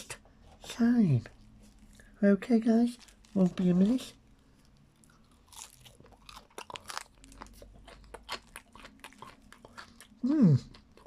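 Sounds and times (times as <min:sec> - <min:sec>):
person chewing crunchy food: 0:03.0 - 0:11.0.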